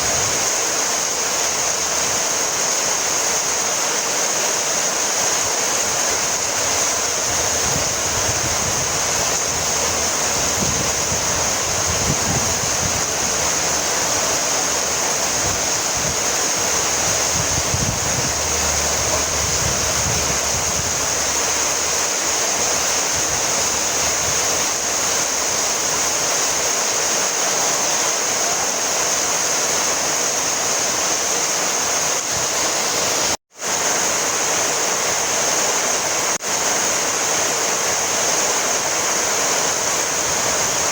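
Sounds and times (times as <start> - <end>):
heavy rain falling: 0.0 - 40.9
low rumbling: 6.4 - 26.2.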